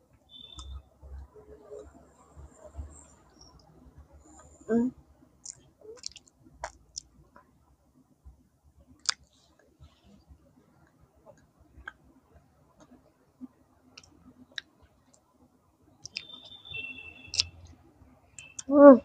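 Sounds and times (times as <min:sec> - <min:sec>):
wet mouth clicks: 0:05.4 - 0:07.1, 0:09.0 - 0:09.3, 0:16.0 - 0:16.6, 0:17.3 - 0:17.5.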